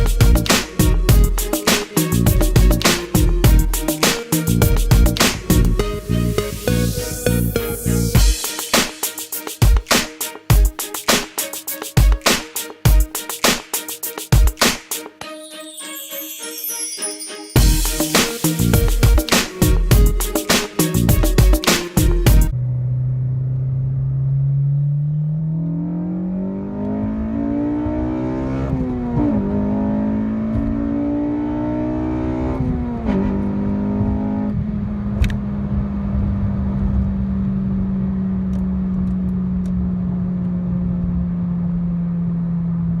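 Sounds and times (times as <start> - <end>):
car engine accelerating hard: 22.6 - 43.0.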